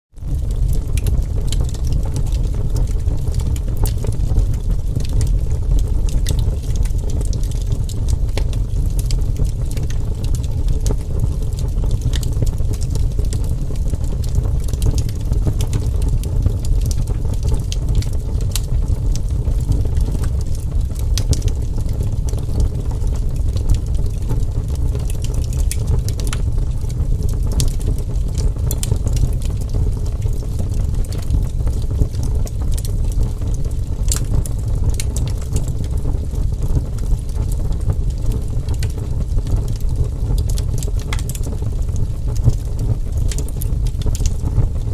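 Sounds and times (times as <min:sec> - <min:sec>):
wood fire crackling and popping: 0:00.2 - 0:44.9.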